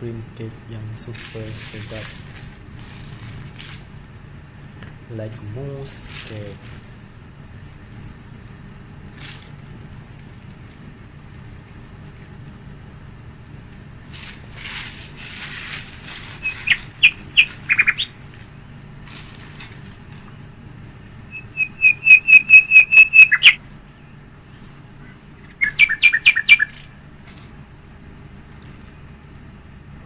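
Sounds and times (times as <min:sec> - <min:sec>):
soft rustle: 0:01.0 - 0:05.0, 0:13.7 - 0:20.4
bird chirping: 0:16.4 - 0:18.2, 0:21.3 - 0:24.1, 0:25.4 - 0:26.9.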